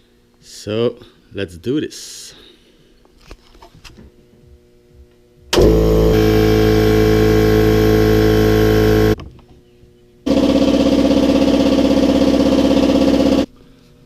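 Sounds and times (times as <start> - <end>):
air compressor running: 5.5 - 9.2, 10.3 - 13.5.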